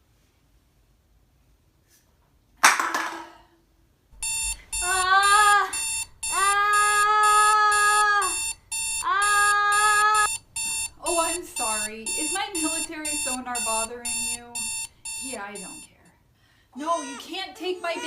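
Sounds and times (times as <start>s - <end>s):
long pitched calls: 4.2s - 15.9s.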